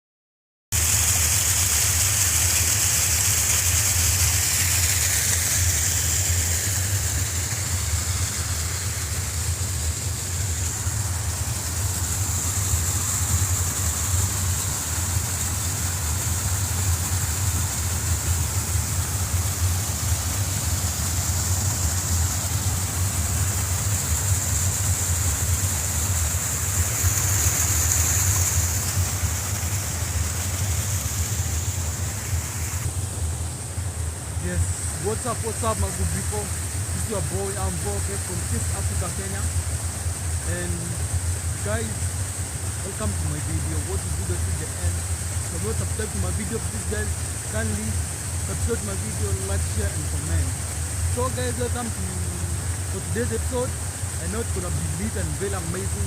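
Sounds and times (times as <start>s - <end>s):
fast-flowing river water: 13.9s - 32.9s.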